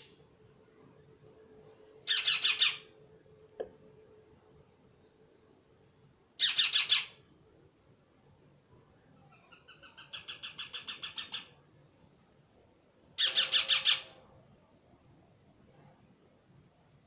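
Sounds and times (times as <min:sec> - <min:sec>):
parrot calling: 0:02.1 - 0:02.9, 0:13.2 - 0:14.2.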